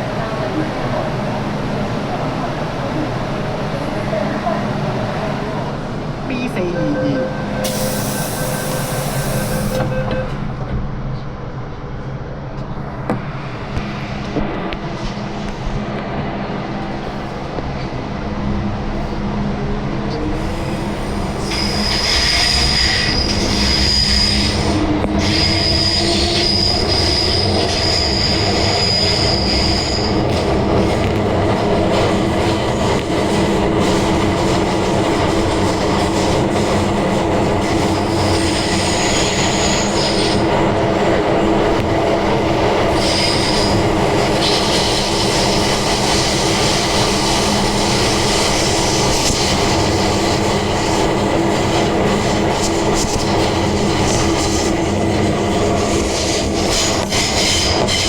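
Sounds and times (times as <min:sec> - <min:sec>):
wheels rumbling on rail: 0:00.0 - 0:58.0
high wheel squeal: 0:20.5 - 0:30.4, 0:37.9 - 0:40.6, 0:42.9 - 0:46.3.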